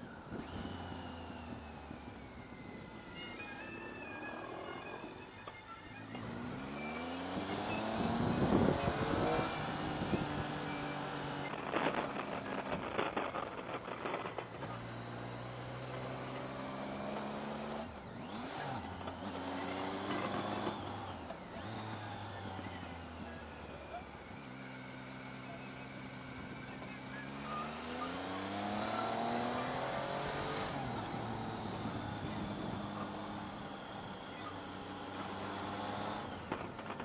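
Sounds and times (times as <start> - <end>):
motorcycle engine: 0.0 - 37.0
wind flutter on microphone: 8.0 - 10.4, 11.5 - 14.9.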